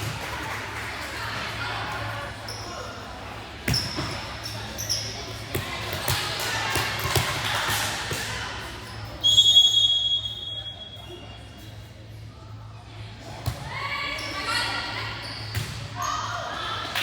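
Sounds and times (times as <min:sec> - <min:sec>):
referee's whistle blast: 0:09.2 - 0:11.0.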